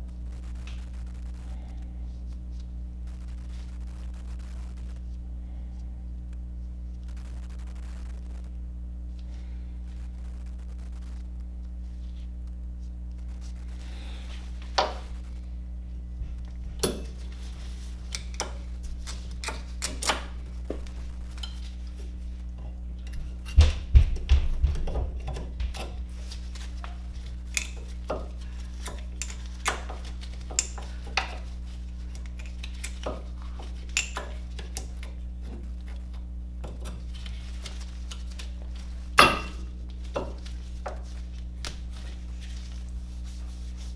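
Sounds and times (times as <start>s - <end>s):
low steady hum: 0.0s - 43.9s
metal tools clinking: 16.8s - 21.8s, 38.1s - 41.0s
sharp knocks: 23.4s - 26.0s.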